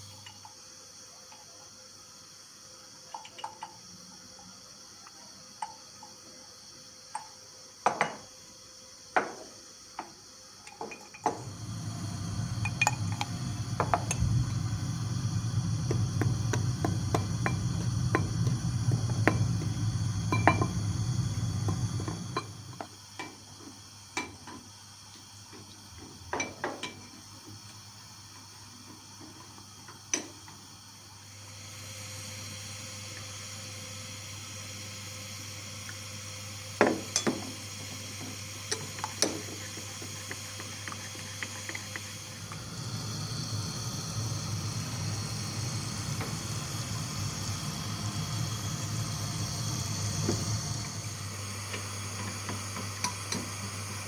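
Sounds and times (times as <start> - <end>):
steady low rumble: 11.7 - 22.3.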